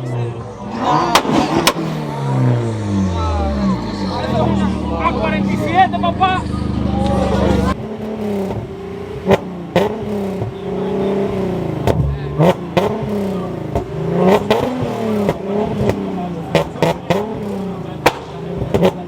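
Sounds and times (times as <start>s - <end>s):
car engine revving: 0.0s - 19.0s
sharp cracks: 18.0s - 18.4s.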